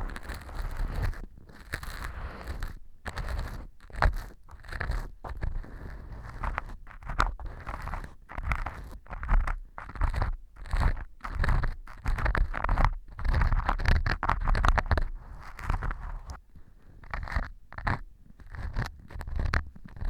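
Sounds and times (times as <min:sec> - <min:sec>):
earpick scraping gritty material: 0:00.0 - 0:20.0.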